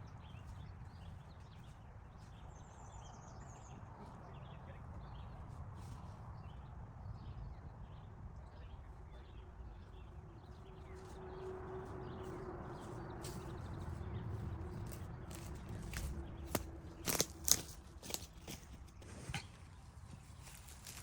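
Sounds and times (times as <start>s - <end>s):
steady low rumble: 2.5s - 19.0s.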